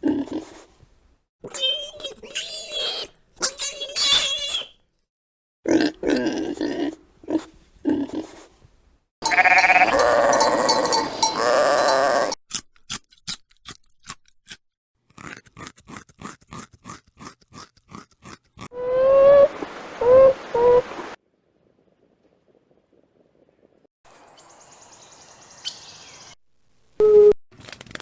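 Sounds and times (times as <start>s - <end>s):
sheep bleating: 9.2s - 12.4s.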